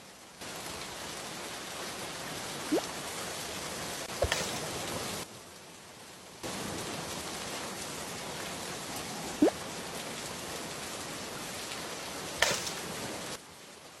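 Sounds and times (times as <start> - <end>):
heavy rain: 0.0 - 14.0
sharp crack: 12.4 - 12.8.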